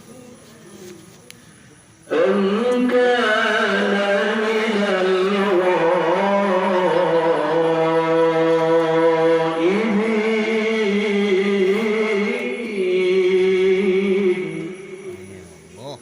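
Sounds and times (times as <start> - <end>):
man reciting melodically: 2.0 - 16.0.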